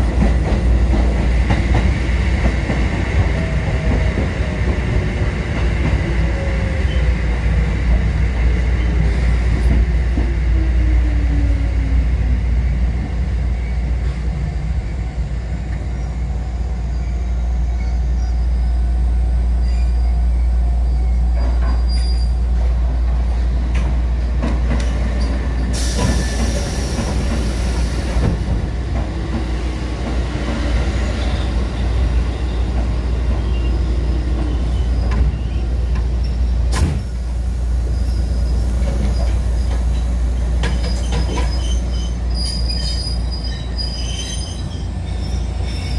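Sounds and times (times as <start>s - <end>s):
electric train running rumble: 0.0s - 45.9s
burst of hiss: 25.8s - 28.1s
wheel squeal: 40.6s - 45.9s.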